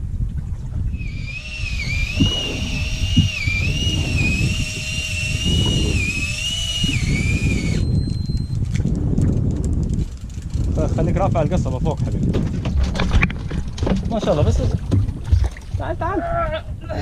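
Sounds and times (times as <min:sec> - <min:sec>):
wind: 0:00.0 - 0:17.0
boat noise: 0:00.5 - 0:08.8
fishing reel motor whining: 0:00.9 - 0:08.8.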